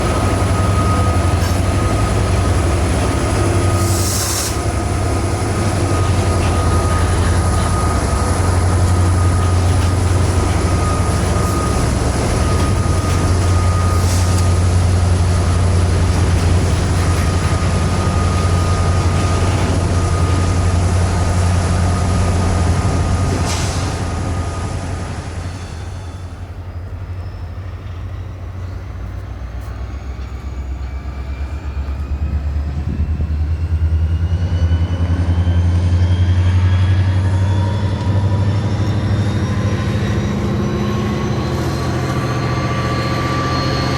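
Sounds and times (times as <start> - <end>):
wheels squealing: 0.0 - 32.2
train rumbling past: 0.0 - 43.9
rising whines: 4.6 - 25.7, 30.2 - 43.9.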